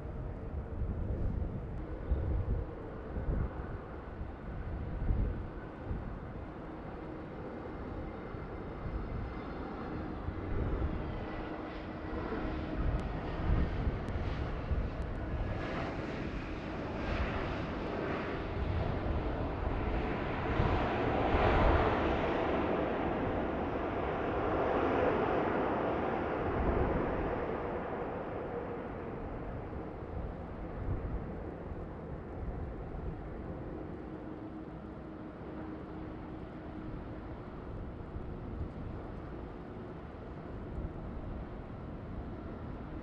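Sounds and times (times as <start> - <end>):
wind gusts buffeting microphone: 0.0 - 34.3
jet airliner engines passing overhead: 0.0 - 43.0.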